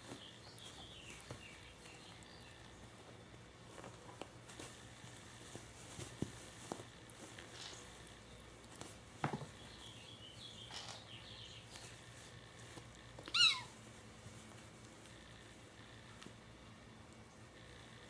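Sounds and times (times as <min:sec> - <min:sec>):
kitten mewing: 0:13.2 - 0:13.8.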